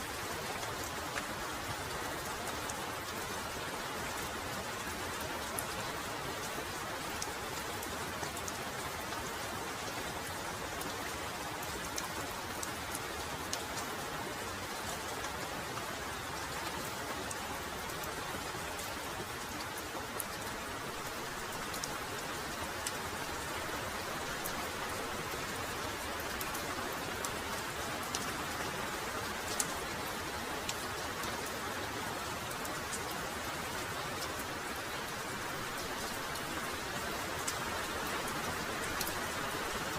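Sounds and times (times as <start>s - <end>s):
heavy rain: 0.0s - 39.9s
raindrops ticking: 18.8s - 31.4s.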